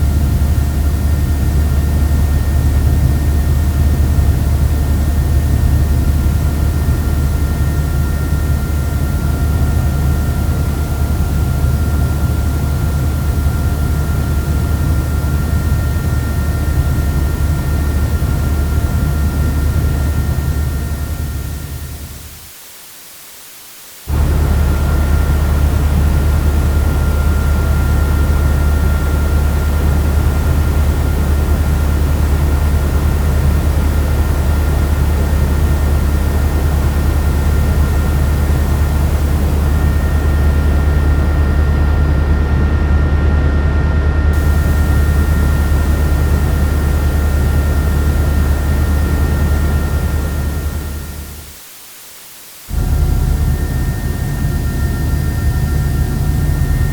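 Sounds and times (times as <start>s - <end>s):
helicopter rumble and whine: 24.1s - 51.4s, 52.7s - 56.9s.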